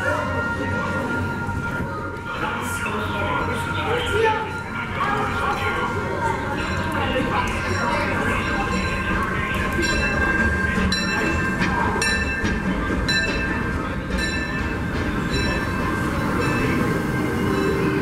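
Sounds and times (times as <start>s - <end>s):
train rumbling over bridge: 0.0s - 18.0s
train wheels clacking: 6.6s - 18.0s.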